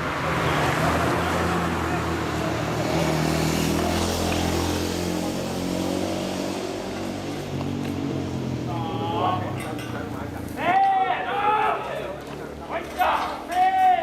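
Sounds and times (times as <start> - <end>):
voices: 6.9 - 14.0.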